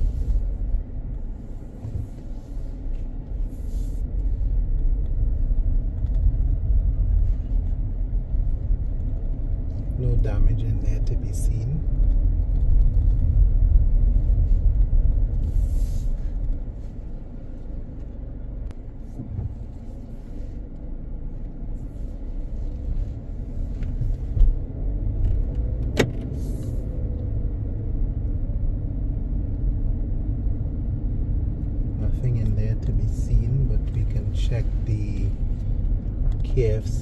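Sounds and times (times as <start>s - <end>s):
car engine and tyres rumbling: 0.0s - 37.0s.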